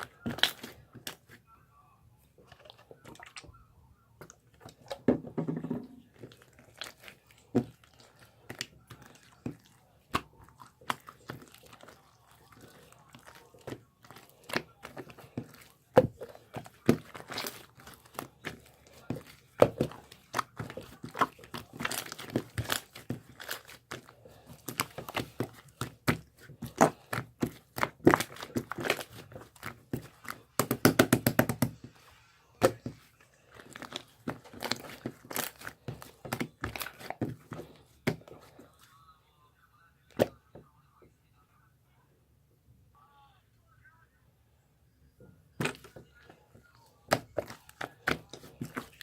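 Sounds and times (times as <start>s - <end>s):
crinkling and rustling: 0.0s - 1.5s, 4.2s - 39.0s, 45.5s - 49.0s.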